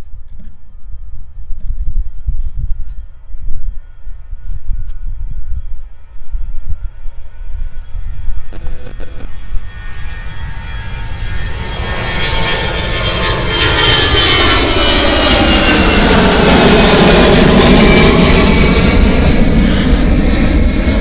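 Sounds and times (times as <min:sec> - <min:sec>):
airliner engines: 0:00.0 - 0:21.0
high engine whine: 0:06.8 - 0:13.6.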